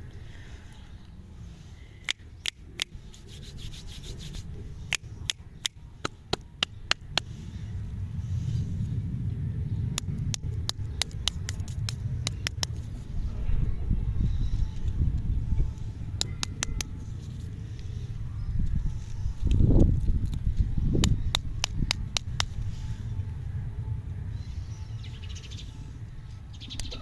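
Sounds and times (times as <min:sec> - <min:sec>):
steady low rumble: 0:00.0 - 0:27.0
close rubbing and handling noise: 0:01.4 - 0:09.0, 0:10.0 - 0:23.4
sharp clicks and crackles: 0:09.9 - 0:13.0, 0:18.6 - 0:22.7.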